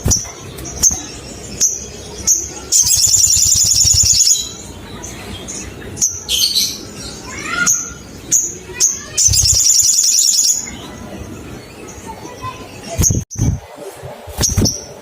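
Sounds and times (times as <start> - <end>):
bird trilling: 0.0 - 4.7, 6.0 - 11.0
bird chirping: 0.0 - 13.6.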